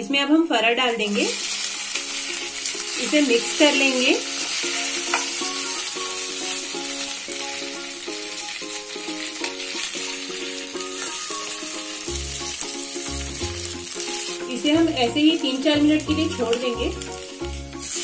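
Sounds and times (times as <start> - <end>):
food sizzling in hot oil: 0.1 - 18.0
background melody: 1.0 - 18.0.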